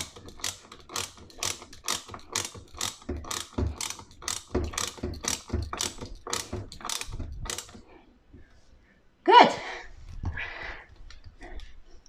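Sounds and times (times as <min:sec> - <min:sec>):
ratchet clicking: 0:00.0 - 0:07.8.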